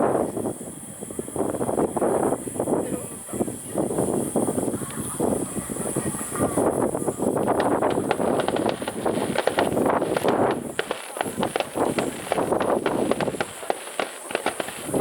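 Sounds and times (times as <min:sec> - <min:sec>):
aerial fireworks crackling and popping: 0:07.4 - 0:15.0.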